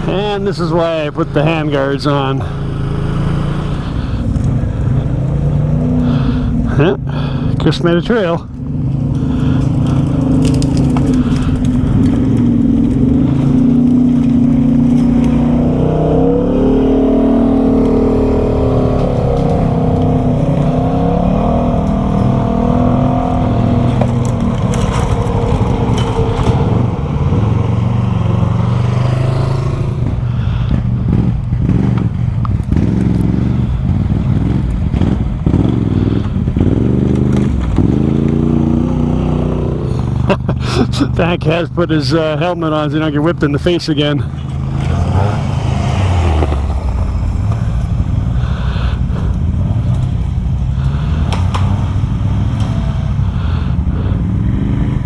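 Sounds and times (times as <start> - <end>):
atv engine revving: 0.0 - 55.0
branches scraping against machine: 8.9 - 15.5, 23.8 - 26.8.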